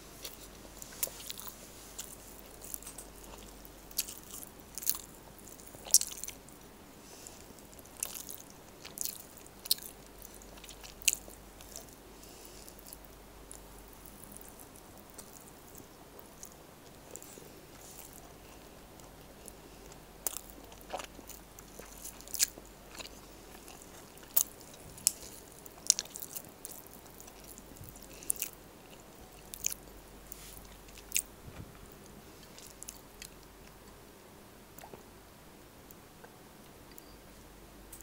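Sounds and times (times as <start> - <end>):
person chewing with mouth smacks: 0.2 - 6.4, 7.4 - 12.0, 12.6 - 31.3, 34.8 - 35.0.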